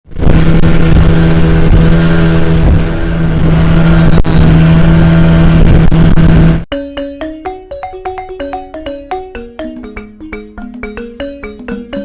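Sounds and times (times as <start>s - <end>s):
heavy rushing water noise: 0.1s - 6.6s
speedboat engine droning: 0.1s - 6.7s.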